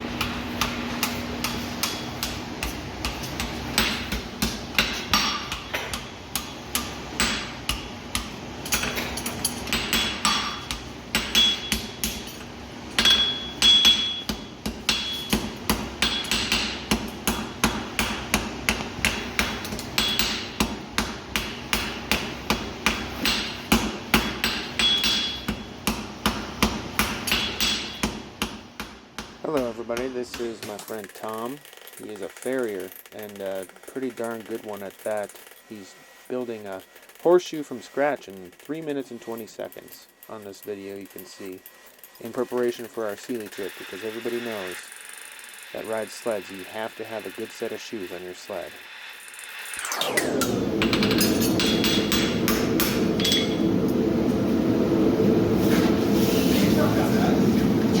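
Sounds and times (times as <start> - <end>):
hammer striking steel on anvil: 0.1 - 30.9, 50.1 - 54.0.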